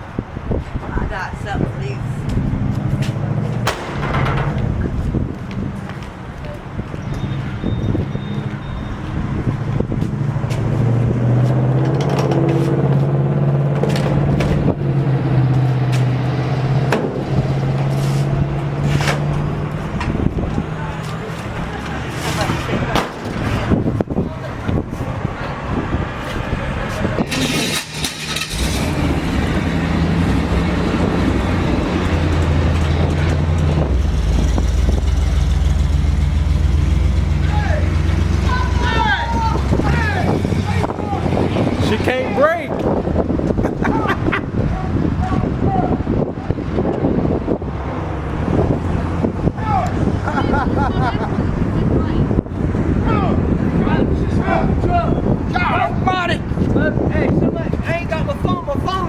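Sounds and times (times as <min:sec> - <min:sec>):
truck engine running: 0:02.0 - 0:43.7
sharp knocks and clicks: 0:03.0 - 0:04.8, 0:11.8 - 0:12.6
pickup truck engine pulling away: 0:25.9 - 0:42.2.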